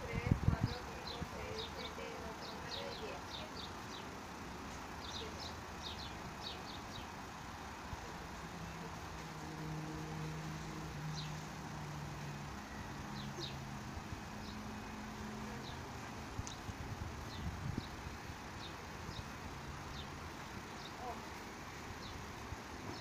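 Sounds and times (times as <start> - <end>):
small birds chirping: 0.0 - 23.0
steady outdoor hum: 0.0 - 23.0.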